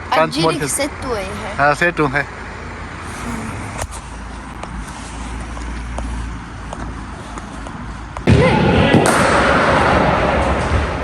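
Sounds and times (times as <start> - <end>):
voice: 0.0 - 2.2, 3.1 - 3.8.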